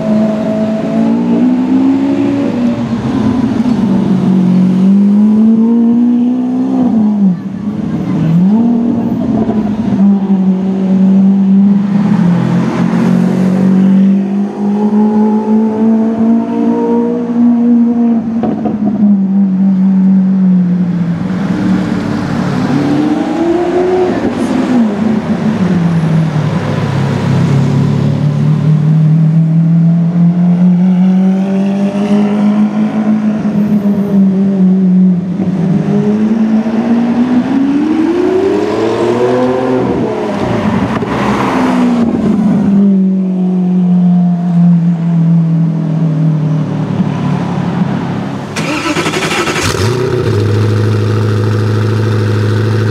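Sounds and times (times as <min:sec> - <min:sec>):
loud car engine revving: 0:00.0 - 0:19.6, 0:21.0 - 0:42.8, 0:48.4 - 0:52.9.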